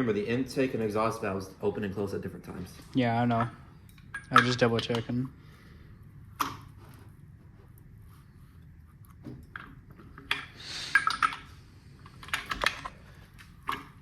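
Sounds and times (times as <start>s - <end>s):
metal tools clinking: 3.3s - 5.2s.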